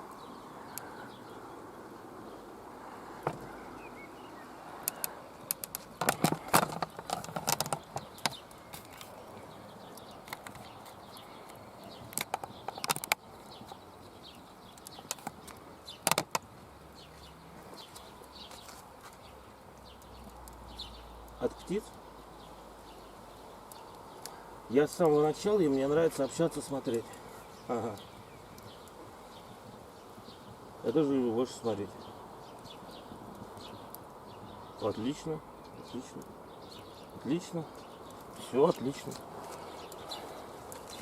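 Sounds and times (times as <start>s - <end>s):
sharp clicks and knocks: 4.9s - 9.1s, 12.1s - 13.2s, 14.8s - 16.5s.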